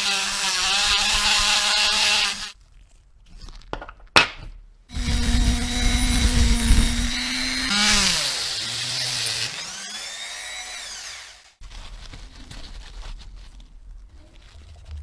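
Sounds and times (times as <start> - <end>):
handheld power tool whining: 0.0 - 2.6, 4.9 - 11.6.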